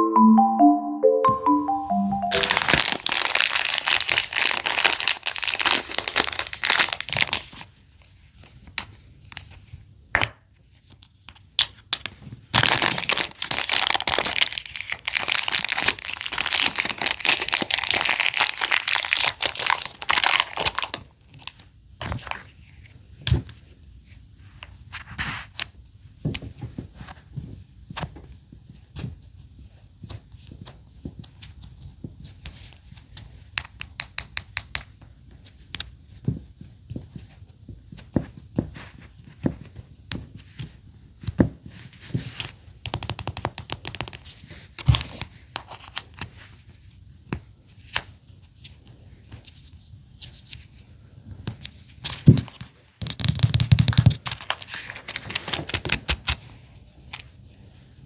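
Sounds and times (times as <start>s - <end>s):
plastic toys clicking and tapping: 53.0s - 54.4s.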